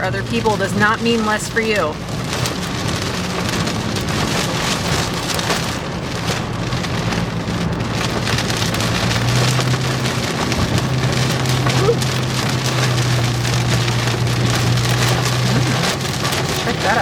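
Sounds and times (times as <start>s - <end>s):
rain pelting a vehicle roof: 0.0s - 17.0s
road and engine hum: 0.0s - 17.0s.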